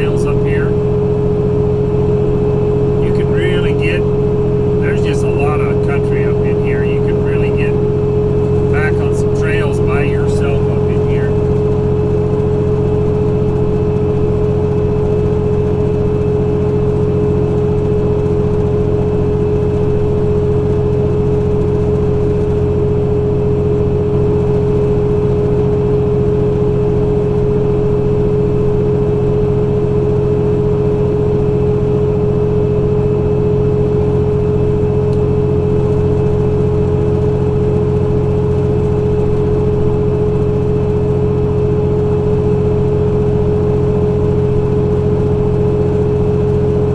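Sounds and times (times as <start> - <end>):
truck diesel engine cruising: 0.0 - 13.1.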